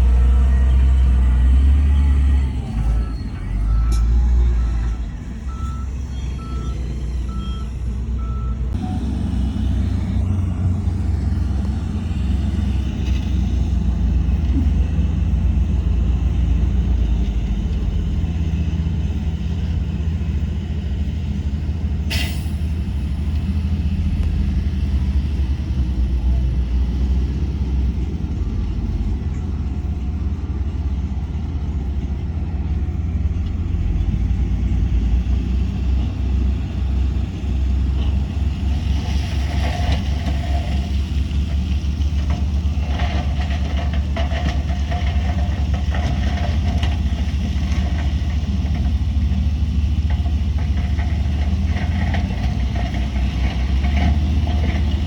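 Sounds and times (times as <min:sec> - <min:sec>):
diesel machinery rumbling: 0:00.0 - 0:55.0
reversing alarm beeping: 0:00.3 - 0:09.8.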